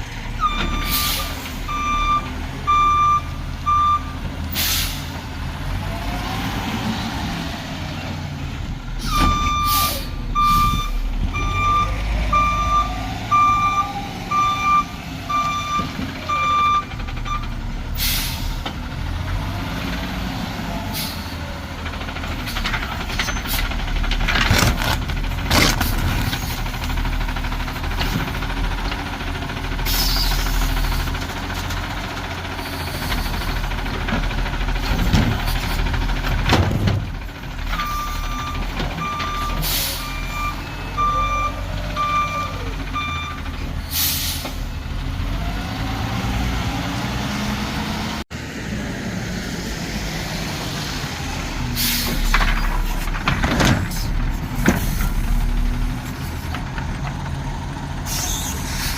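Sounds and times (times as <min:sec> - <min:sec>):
garbage truck engine rumbling: 0:00.0 - 0:58.9
backup alarm beeping: 0:00.4 - 0:04.2, 0:09.1 - 0:17.5, 0:37.8 - 0:43.4
air brake hisses: 0:04.6 - 0:05.1, 0:18.0 - 0:18.6, 0:43.9 - 0:44.6.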